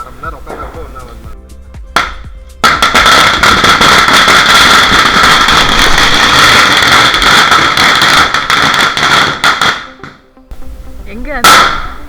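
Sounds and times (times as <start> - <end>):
firework hissing and crackling: 2.5 - 9.9.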